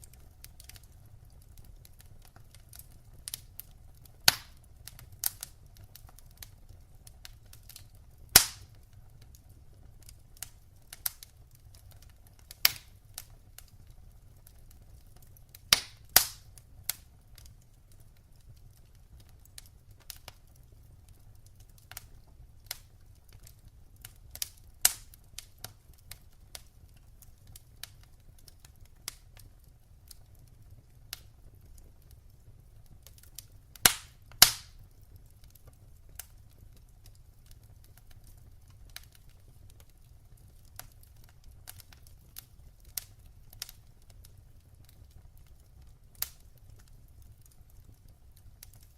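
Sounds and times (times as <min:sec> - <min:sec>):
low rumble of burning: 0:00.0 - 0:48.9
wood fire crackling: 0:00.0 - 0:48.9.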